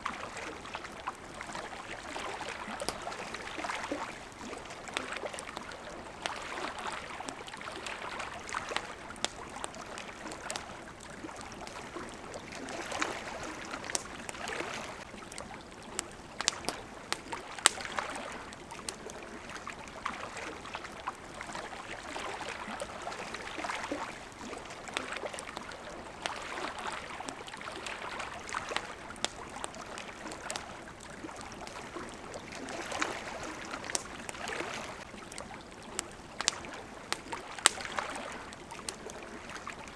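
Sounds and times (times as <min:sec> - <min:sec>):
campfire crackling: 0:00.0 - 0:39.9
water lapping at a shore: 0:00.0 - 0:39.9
fire pops and snaps: 0:01.0 - 0:19.7, 0:27.8 - 0:39.9.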